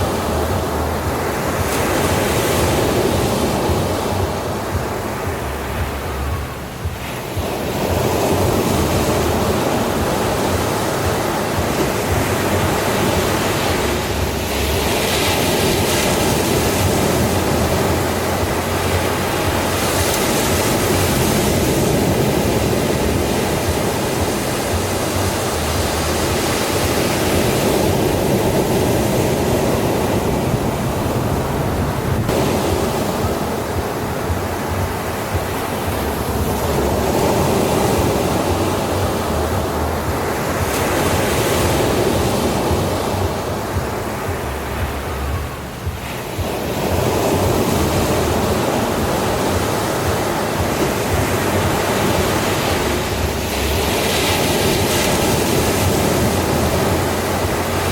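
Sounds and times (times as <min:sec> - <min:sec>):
ocean waves breaking on shore: 0:00.0 - 0:57.9.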